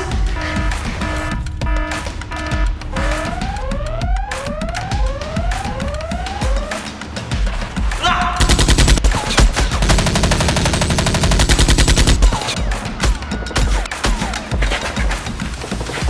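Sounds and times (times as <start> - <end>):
background music: 0.0 - 16.0
rising siren-like wail: 1.2 - 7.0
automatic gunfire: 8.4 - 14.2.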